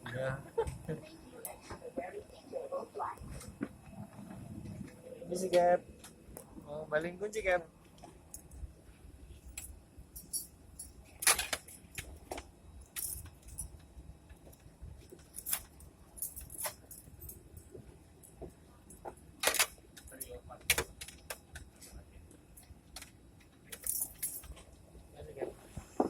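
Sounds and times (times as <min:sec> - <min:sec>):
keys jangling: 0:09.4 - 0:12.2, 0:12.8 - 0:17.8, 0:18.9 - 0:21.4, 0:23.7 - 0:24.6.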